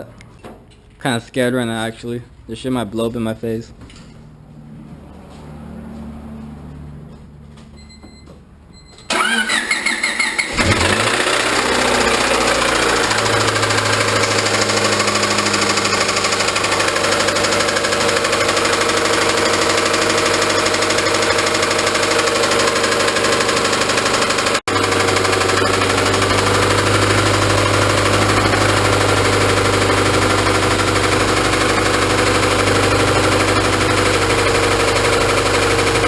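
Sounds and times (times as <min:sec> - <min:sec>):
starter cranking engine: 0:09.1 - 0:36.0
engine running with rod knock: 0:10.6 - 0:36.0.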